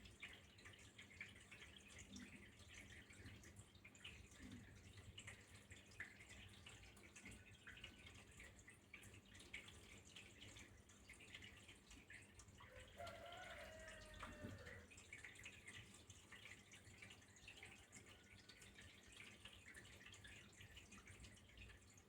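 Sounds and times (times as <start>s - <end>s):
water dripping and trickling: 0.0s - 22.0s.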